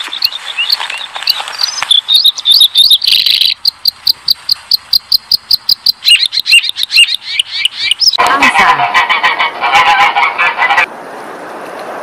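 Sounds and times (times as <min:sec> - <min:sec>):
robin singing: 0:00.0 - 0:08.2.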